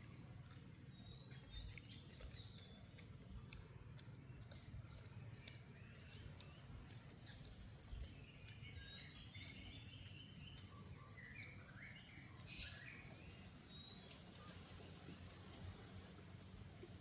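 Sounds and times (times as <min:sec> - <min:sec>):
faint high chirping calls: 0:05.5 - 0:14.6
low outdoor rumble: 0:07.9 - 0:17.0.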